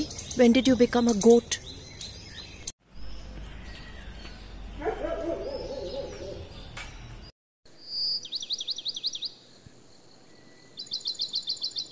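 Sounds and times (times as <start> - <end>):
rapid sweeping bird chirps: 0.0 - 7.3.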